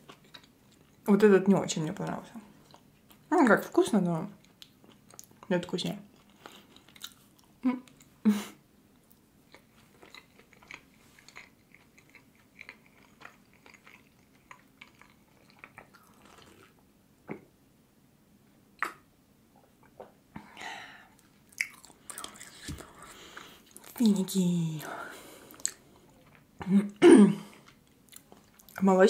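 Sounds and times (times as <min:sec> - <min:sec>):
person chewing with wet clicks: 0:00.0 - 0:01.1, 0:02.6 - 0:03.3, 0:04.3 - 0:08.2, 0:09.0 - 0:17.4, 0:21.2 - 0:24.4, 0:25.4 - 0:28.9.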